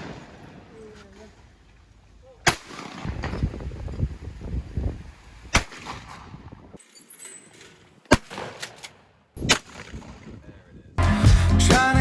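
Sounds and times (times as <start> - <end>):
shotgun shots: 2.4 - 3.4, 5.5 - 6.4, 8.1 - 10.4.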